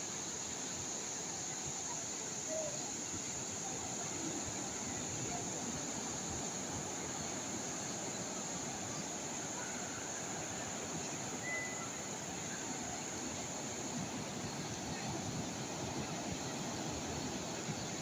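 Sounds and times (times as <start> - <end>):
sea waves washing on shore: 3.1 - 18.0
faint high chirp: 9.6 - 12.9.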